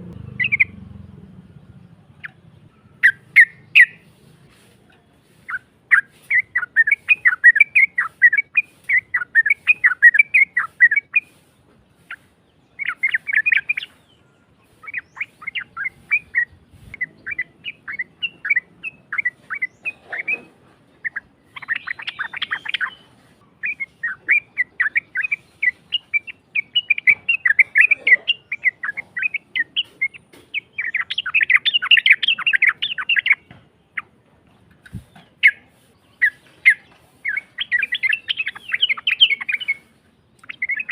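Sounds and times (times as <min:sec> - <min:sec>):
bird harsh chattering song: 0:00.0 - 0:40.9.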